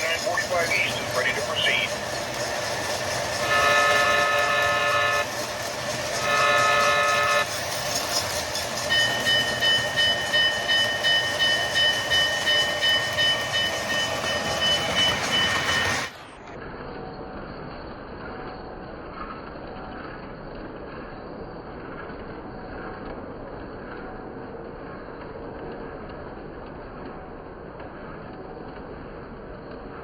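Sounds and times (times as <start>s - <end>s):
model train bell ringing: 0.0s - 16.2s
model train running noise: 0.0s - 30.0s
model train horn blasts: 3.4s - 5.4s, 6.2s - 7.5s.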